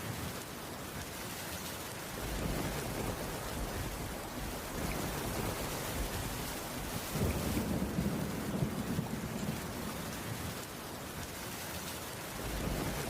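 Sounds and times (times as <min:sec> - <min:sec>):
heavy rain on a roof: 0:00.0 - 0:13.0
low rumble of thunder: 0:02.2 - 0:10.7, 0:12.4 - 0:13.0.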